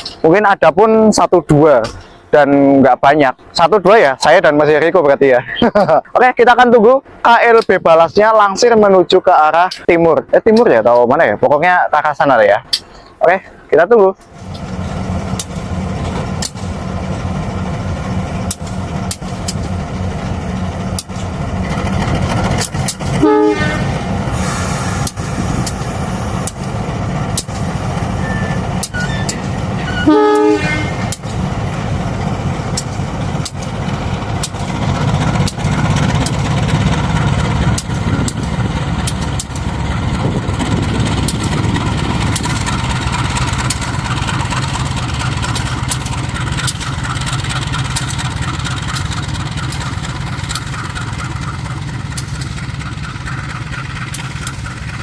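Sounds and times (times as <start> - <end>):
locomotive engine running: 0.0 - 55.0
short horn toots: 23.2 - 25.1, 28.2 - 31.1.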